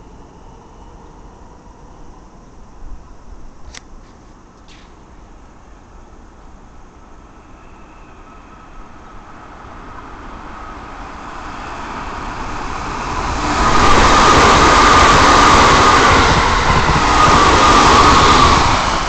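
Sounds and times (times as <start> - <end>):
train wheels rumbling: 4.7 - 19.0.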